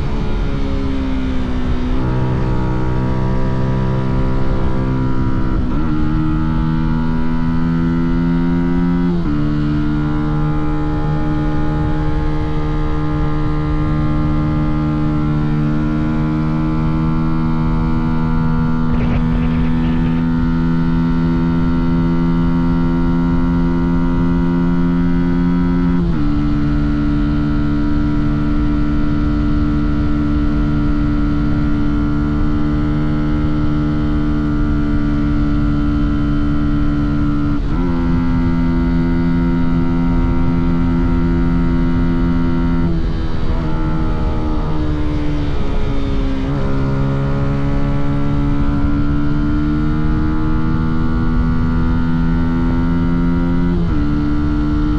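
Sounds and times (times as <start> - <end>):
motorcycle engine running: 10.1 - 33.0.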